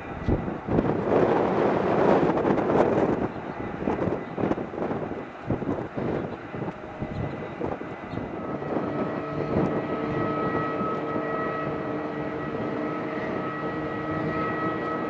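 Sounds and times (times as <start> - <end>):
jet engine whine: 0.0 - 15.0
jet engines roaring: 0.0 - 15.0.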